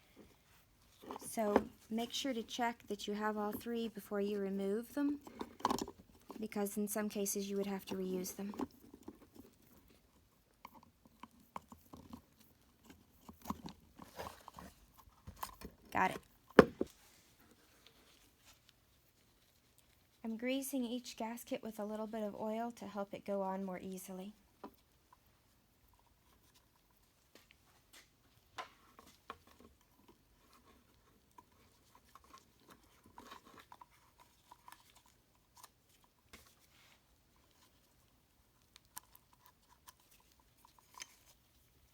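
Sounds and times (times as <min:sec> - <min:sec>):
small clicks and rubbing: 0:04.9 - 0:20.3, 0:24.6 - 0:41.9.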